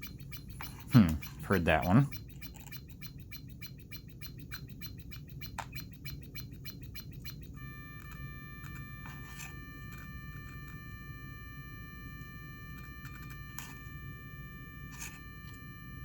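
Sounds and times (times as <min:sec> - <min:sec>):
high buzzing tones: 0:00.0 - 0:16.0
toy speech chip glitching clicks: 0:00.0 - 0:16.0.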